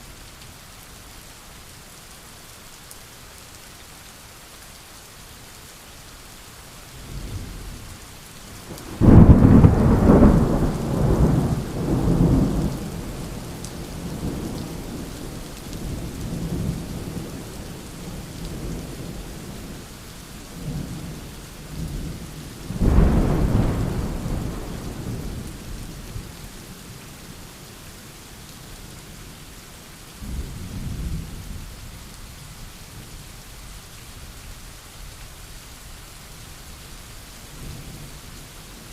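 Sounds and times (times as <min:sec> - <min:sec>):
steady rain: 0:00.0 - 0:38.9
thunder rumbling: 0:08.7 - 0:15.1, 0:21.8 - 0:26.4.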